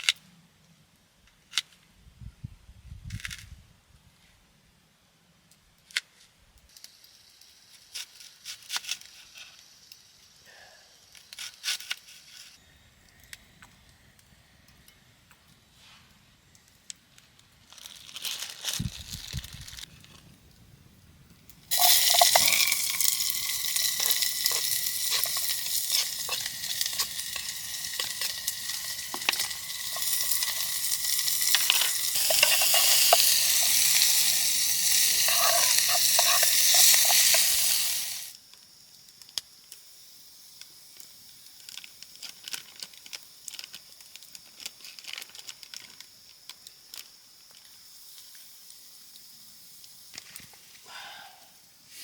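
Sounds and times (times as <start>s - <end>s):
sizzling hiss with crackles: 5.4s - 52.0s
faint scrapes and knocks: 21.7s - 37.8s.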